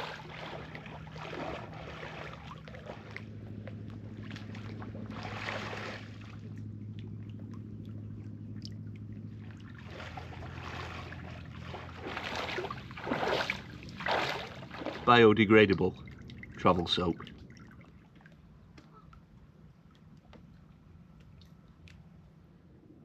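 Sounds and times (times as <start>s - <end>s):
water splashing: 0.0s - 22.1s
low engine hum: 0.0s - 23.0s.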